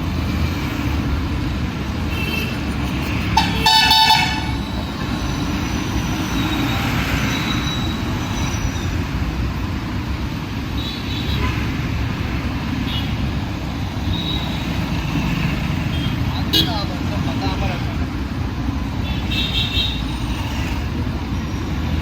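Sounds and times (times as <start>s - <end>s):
street traffic rumble: 0.0s - 22.0s
vehicle horn honking: 3.4s - 4.6s.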